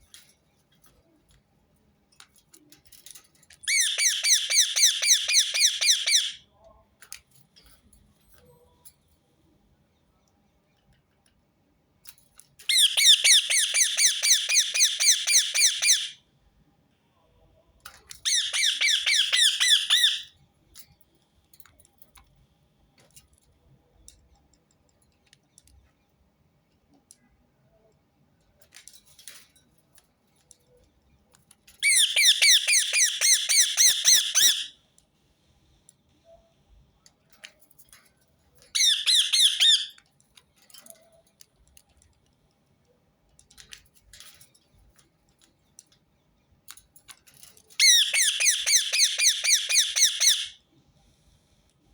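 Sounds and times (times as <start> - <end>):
parakeet shrill calls: 3.7 - 6.4, 12.7 - 16.2, 18.2 - 20.3, 31.8 - 34.7, 38.8 - 39.9, 47.8 - 50.6.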